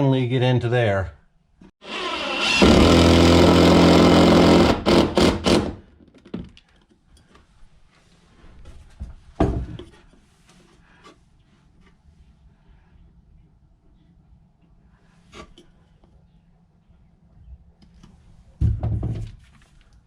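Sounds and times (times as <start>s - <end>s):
electric power tool motor: 1.8s - 5.7s.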